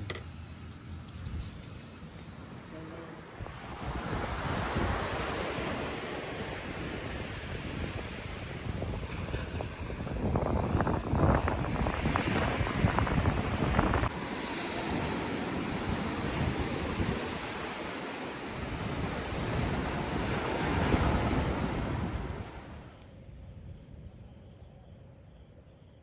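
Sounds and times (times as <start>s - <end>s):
sea waves washing ashore: 1.8s - 23.0s
wind buffeting microphone: 3.3s - 23.0s.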